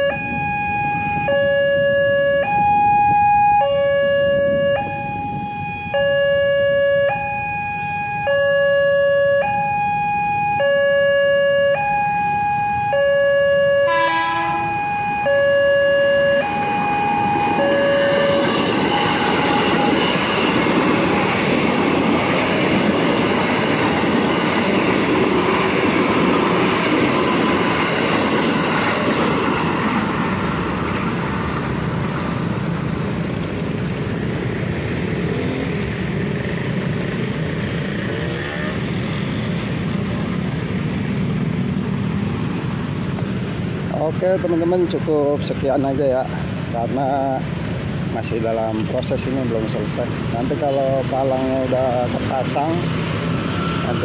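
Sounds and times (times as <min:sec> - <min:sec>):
two-tone warning signal: 0:00.0 - 0:23.0
train running and wheel clatter: 0:16.5 - 0:54.0.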